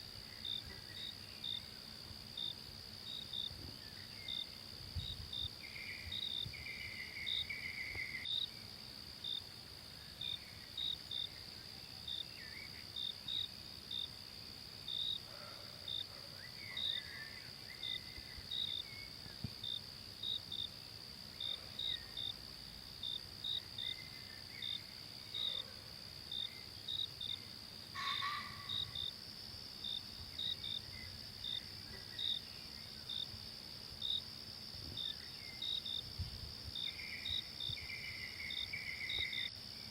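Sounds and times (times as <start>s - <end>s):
high insect drone: 0.0s - 39.9s
faint bird calls: 28.0s - 29.0s.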